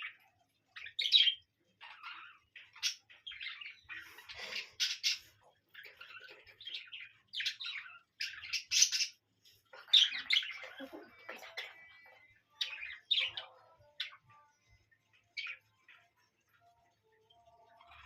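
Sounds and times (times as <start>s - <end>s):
parrot chirping: 0.7s - 9.2s.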